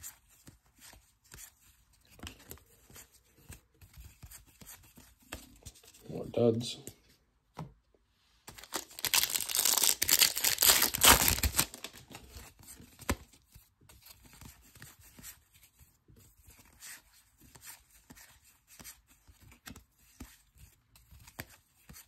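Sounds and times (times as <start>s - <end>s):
foil wrapper tearing and crinkling: 8.6s - 12.2s.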